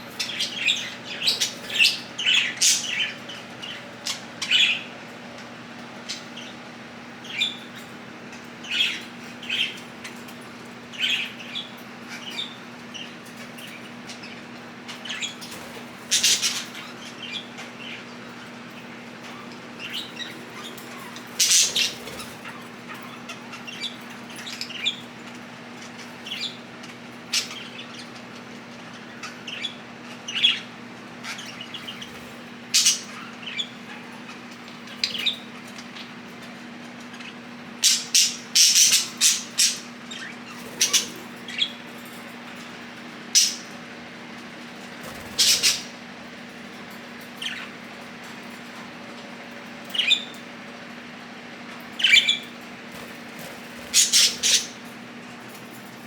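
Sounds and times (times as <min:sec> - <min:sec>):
budgerigars chirping: 0:00.1 - 0:04.9, 0:07.2 - 0:10.2, 0:10.9 - 0:36.2, 0:37.0 - 0:42.1, 0:43.3 - 0:43.8, 0:44.9 - 0:46.0, 0:47.3 - 0:47.8, 0:49.9 - 0:50.4, 0:52.0 - 0:54.9.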